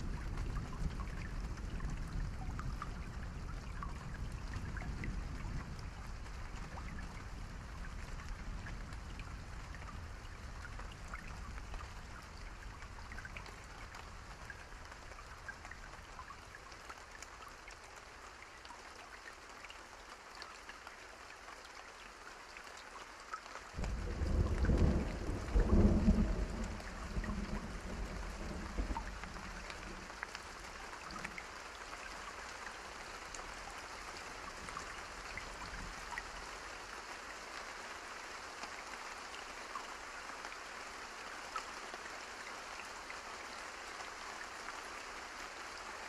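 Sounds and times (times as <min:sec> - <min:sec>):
rain pattering on a surface: 0:00.0 - 0:46.0.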